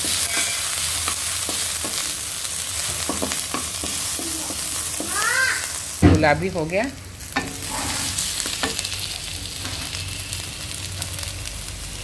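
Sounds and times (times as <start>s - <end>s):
garlic sizzling in hot oil: 0.0s - 12.0s
wooden spatula scraping pan: 7.5s - 8.3s.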